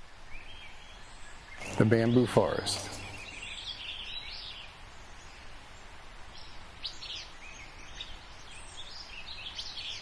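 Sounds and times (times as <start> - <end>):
birds chirping and singing: 0.4 - 5.6.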